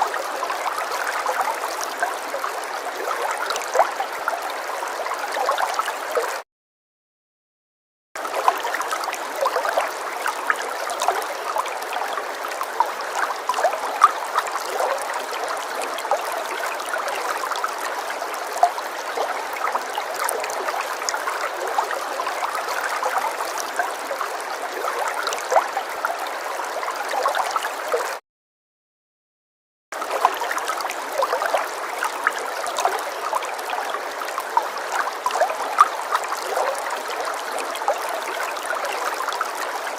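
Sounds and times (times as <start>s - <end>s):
water splashing in a stream: 0.0s - 6.4s, 8.2s - 28.2s, 30.0s - 39.9s.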